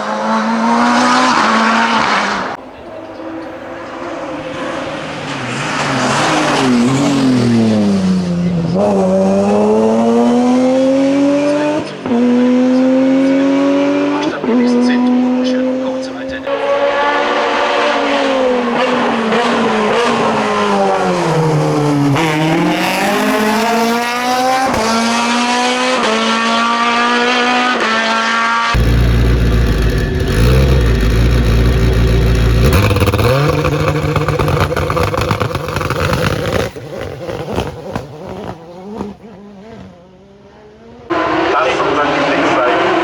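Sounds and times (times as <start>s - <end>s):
racing car engine revving: 0.0s - 43.0s
deeper heavier engine: 28.8s - 37.2s.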